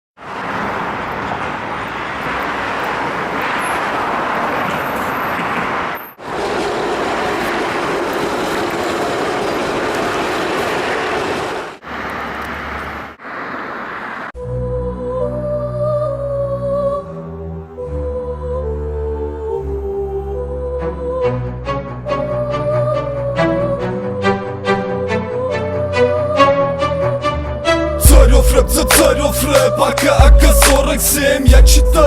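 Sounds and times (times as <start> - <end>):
steady rushing noise: 5.4 - 14.4
music with bass line: 28.0 - 32.0.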